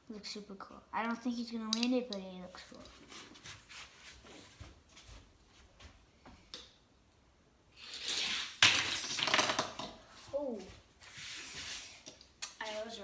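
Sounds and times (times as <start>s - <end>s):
toy car clicking on plastic track: 7.8s - 9.9s.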